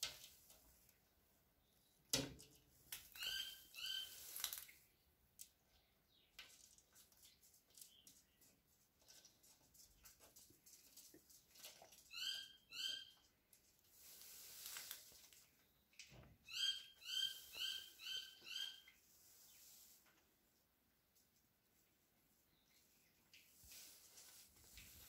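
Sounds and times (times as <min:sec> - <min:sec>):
soft scratchy rustle: 0:06.5 - 0:12.1, 0:13.5 - 0:15.7, 0:19.0 - 0:25.0.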